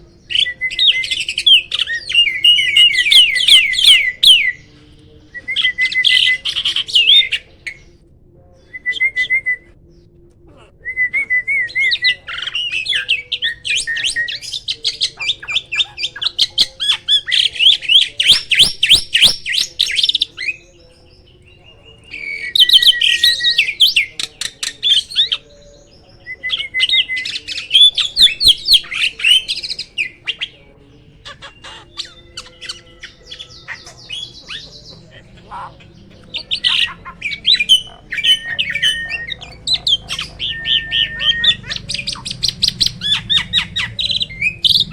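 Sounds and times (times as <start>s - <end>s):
starling singing: 0.0s - 44.9s.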